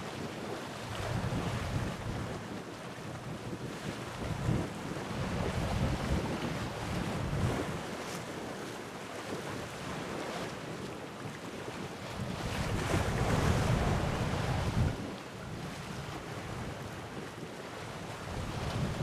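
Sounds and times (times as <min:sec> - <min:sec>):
wind buffeting microphone: 0:00.9 - 0:02.4, 0:03.4 - 0:07.9, 0:12.1 - 0:17.3, 0:18.0 - 0:19.0
sea waves washing ashore: 0:12.1 - 0:19.0.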